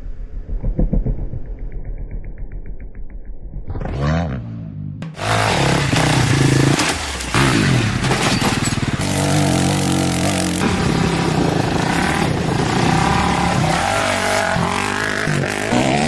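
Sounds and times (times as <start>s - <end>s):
dirt bike engines revving: 5.0s - 16.0s.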